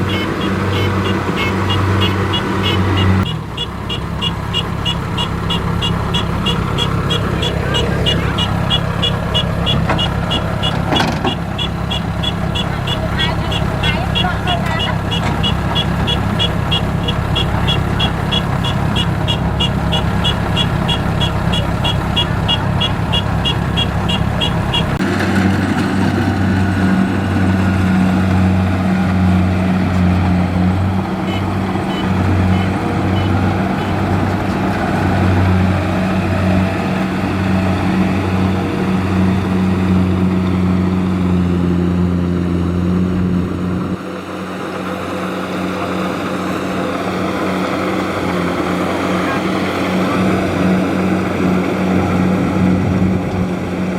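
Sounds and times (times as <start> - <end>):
high warning beeper: 0.0 - 25.0
diesel engine running: 0.0 - 53.9.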